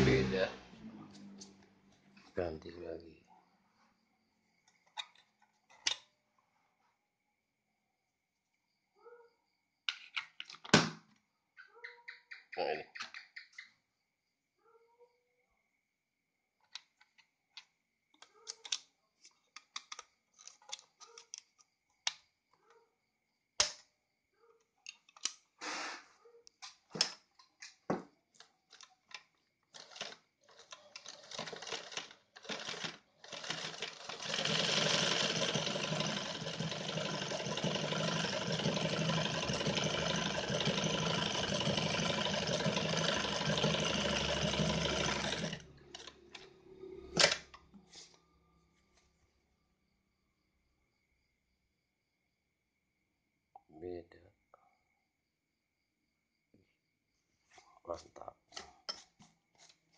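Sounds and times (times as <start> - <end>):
sewing machine running: 0.0 - 0.6, 31.1 - 46.2
sewing machine clicks and knocks: 29.8 - 46.2.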